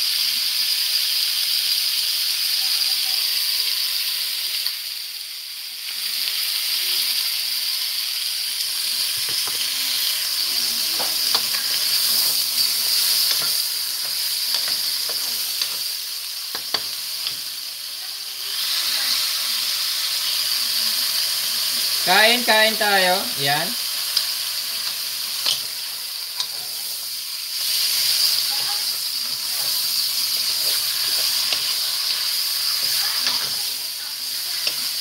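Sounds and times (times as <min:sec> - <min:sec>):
chicken and onion sizzling: 0:00.0 - 0:35.0.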